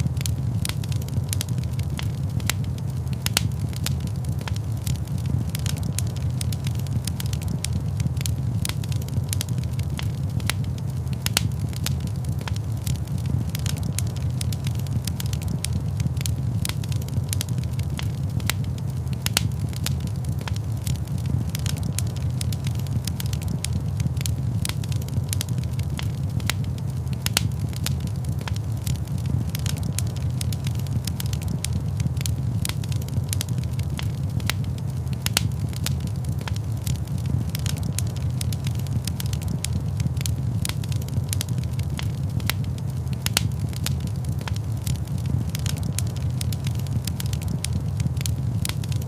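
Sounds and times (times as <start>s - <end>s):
wood fire burning: 0.0s - 49.0s.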